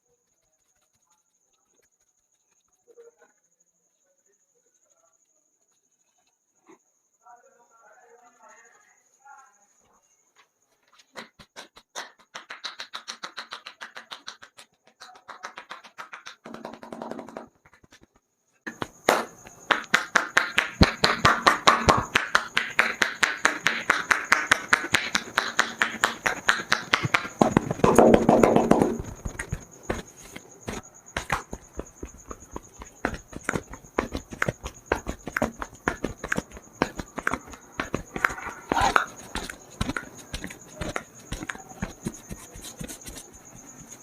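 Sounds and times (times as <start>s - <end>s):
hands chopping and slapping skin: 11.2s - 44.0s.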